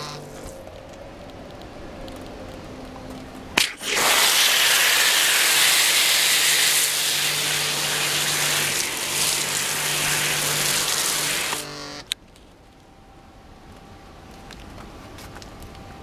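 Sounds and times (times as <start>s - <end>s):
pressure washer jet hissing: 3.6s - 11.7s
washer motor humming: 3.9s - 11.7s.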